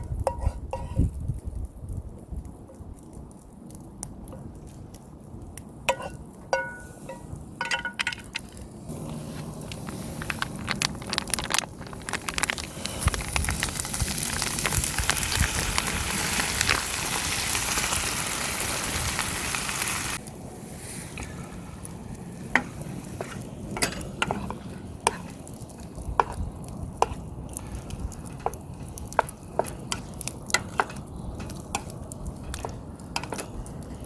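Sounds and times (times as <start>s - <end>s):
food sizzling in a pan: 12.9s - 21.1s.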